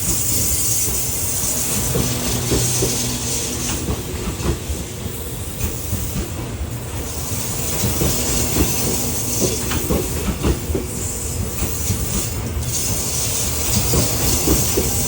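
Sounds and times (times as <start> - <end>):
train wheels clicking over rails: 0.0 - 15.0.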